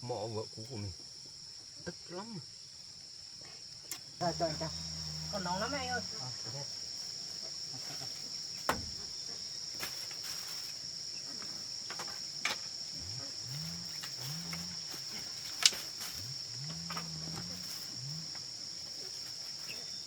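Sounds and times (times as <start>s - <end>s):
high-pitched insect chorus: 0.0s - 20.0s
sharp clicks or knocks: 8.7s - 9.0s.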